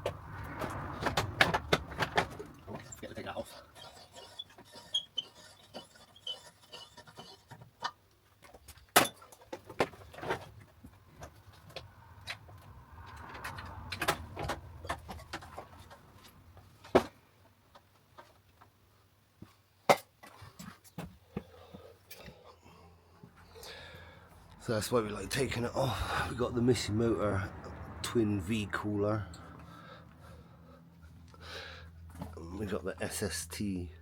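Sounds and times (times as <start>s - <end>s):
rubbing and scraping: 0.0s - 8.0s.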